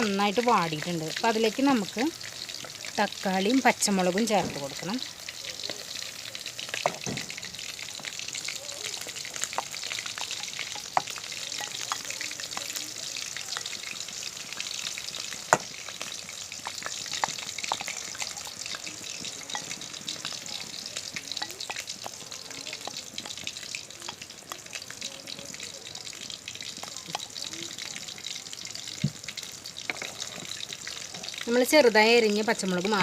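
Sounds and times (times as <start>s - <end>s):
onions sizzling in a pan: 0.0s - 33.0s
spatula scraping a pan: 9.3s - 12.8s, 14.5s - 24.3s, 29.8s - 31.4s.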